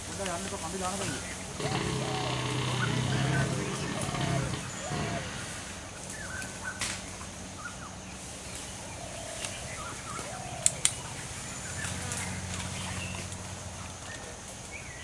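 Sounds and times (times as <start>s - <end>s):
faint bird calls: 1.0s - 7.9s
steady low hum: 1.3s - 6.2s.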